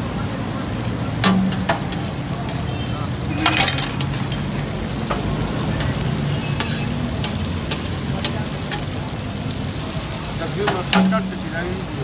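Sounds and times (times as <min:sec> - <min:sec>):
food sizzling on a griddle: 0:00.0 - 0:12.0
sharp metal ticks: 0:01.2 - 0:02.1, 0:06.6 - 0:09.0.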